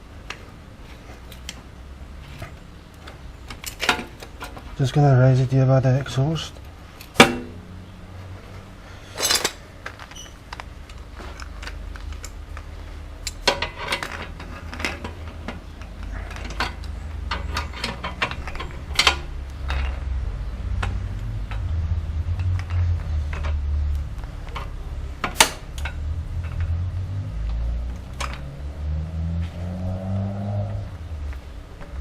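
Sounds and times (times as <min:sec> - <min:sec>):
car jack clanking and clicking: 0:03.5 - 0:04.6, 0:07.0 - 0:07.6, 0:13.2 - 0:20.1.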